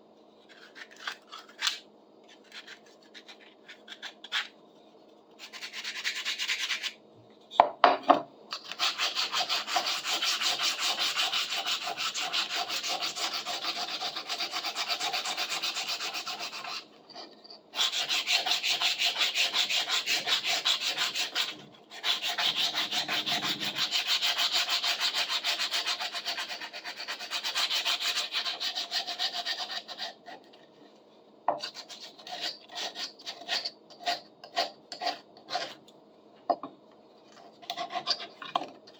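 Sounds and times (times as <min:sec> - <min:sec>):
sandpaper rubbing on wood: 0:08.8 - 0:16.8, 0:17.8 - 0:30.1.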